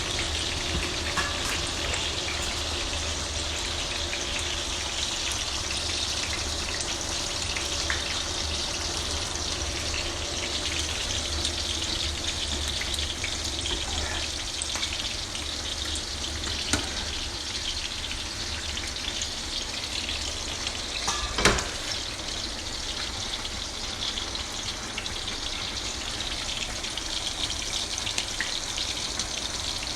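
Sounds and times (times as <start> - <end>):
chicken deep-frying in oil: 0.0 - 29.9.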